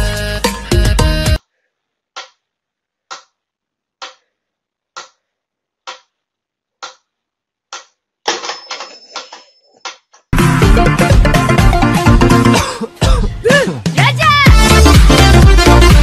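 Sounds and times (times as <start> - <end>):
metronome ticking: 5.8 - 6.2.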